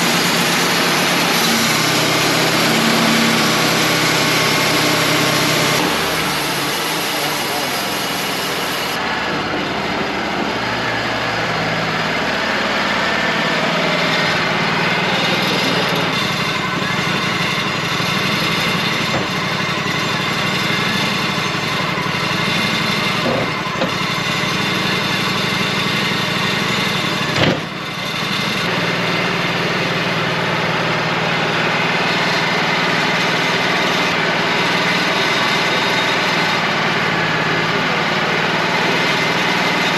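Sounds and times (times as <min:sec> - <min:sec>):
portable sawmill running: 0:00.0 - 0:39.9.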